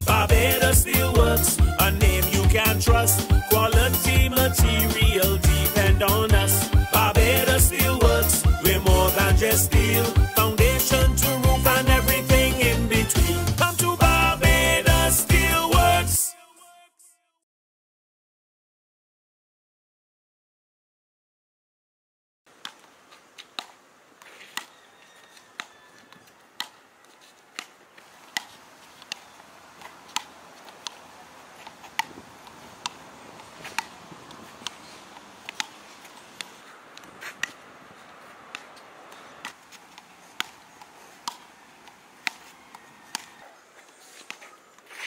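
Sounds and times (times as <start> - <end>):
ball bouncing on concrete: 28.3 - 29.2, 29.8 - 31.0, 31.6 - 35.8, 36.4 - 37.6, 38.5 - 43.5
ball hit by wooden paddles: 32.8 - 33.0, 33.6 - 34.8, 38.5 - 40.6, 41.2 - 43.3.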